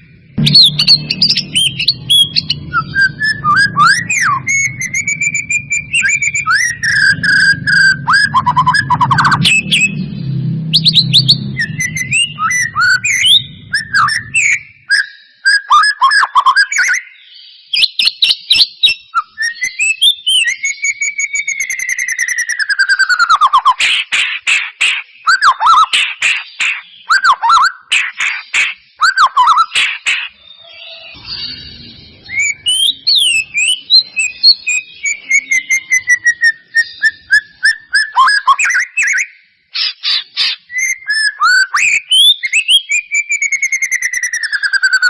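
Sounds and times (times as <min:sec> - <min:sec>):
songbird singing varied whistles: 0:00.0 - 0:10.1, 0:10.8 - 0:45.0
low hum: 0:00.0 - 0:14.9, 0:31.2 - 0:34.4.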